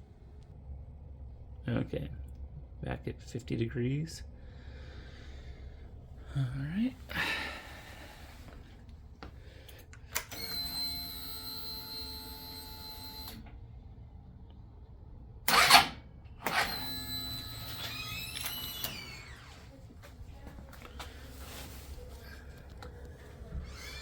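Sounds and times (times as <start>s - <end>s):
starter motor burst: 15.5s - 19.6s.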